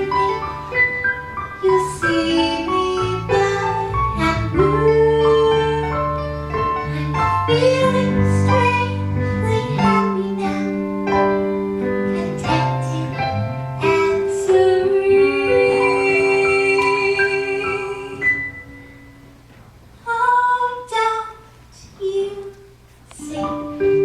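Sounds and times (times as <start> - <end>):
piano accompaniment: 0.0 - 24.0
woman singing a slow ballad: 1.6 - 10.8, 12.1 - 18.5.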